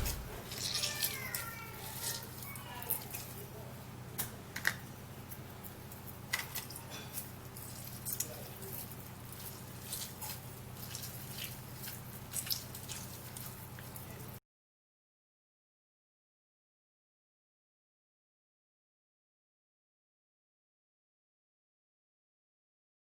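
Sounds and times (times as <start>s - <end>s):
steady low hum: 0.0s - 0.7s.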